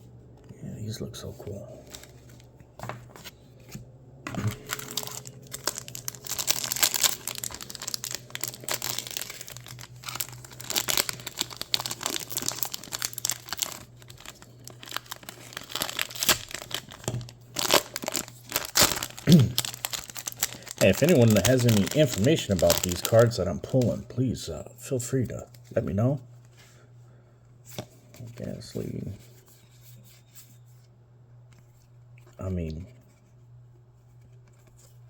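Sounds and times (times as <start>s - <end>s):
foil wrapper crinkling: 1.8s - 3.3s, 4.3s - 24.0s.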